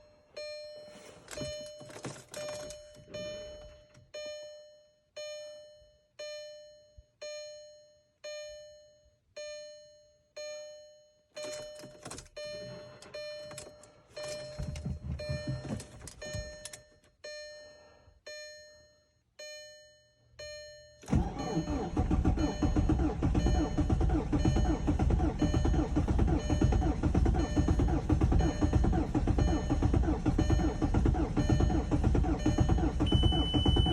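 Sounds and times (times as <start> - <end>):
car warning chime: 0.0 - 33.9
diesel engine starting and running: 21.0 - 33.9.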